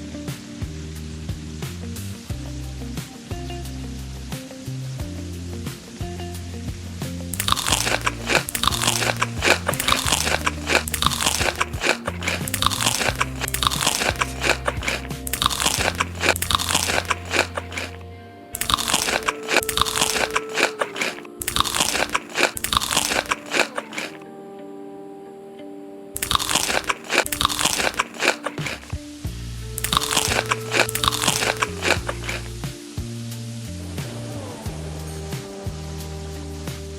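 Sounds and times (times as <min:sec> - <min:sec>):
crunching and chewing crisp food: 0:07.4 - 0:18.0, 0:18.6 - 0:24.2, 0:26.2 - 0:29.1, 0:29.8 - 0:32.6.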